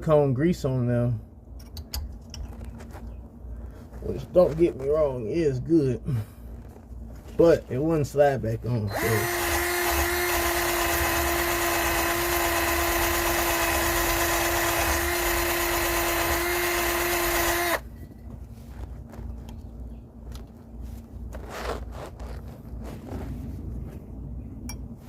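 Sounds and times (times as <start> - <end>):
power tool motor whining: 8.9 - 17.8.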